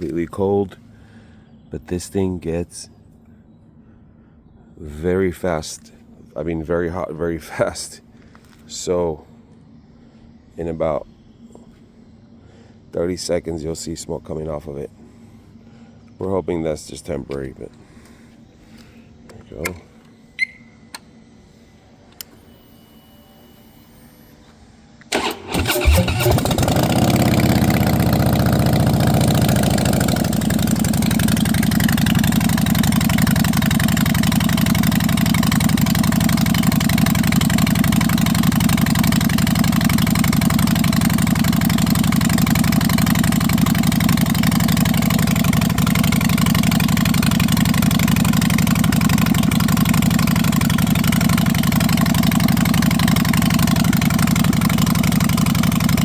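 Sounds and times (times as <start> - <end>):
starter motor cranking: 25.1 - 56.0
motorcycle engine idling: 25.2 - 56.0.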